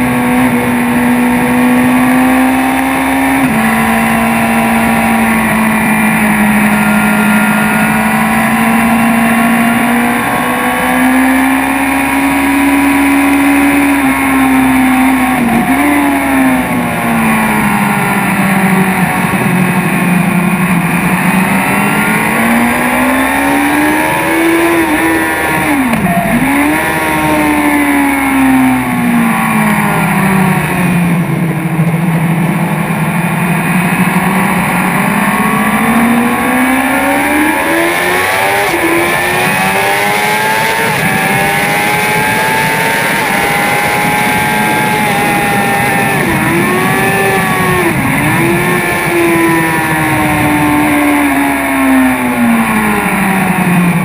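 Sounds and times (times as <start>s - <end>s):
motorcycle engine at speed: 0.0s - 54.0s.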